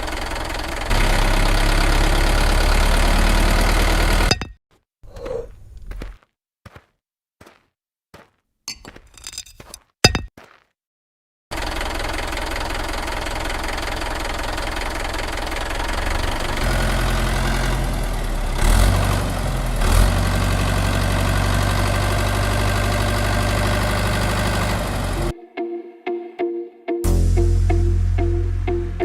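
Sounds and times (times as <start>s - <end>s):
engine running: 0.0s - 4.4s, 11.5s - 25.4s.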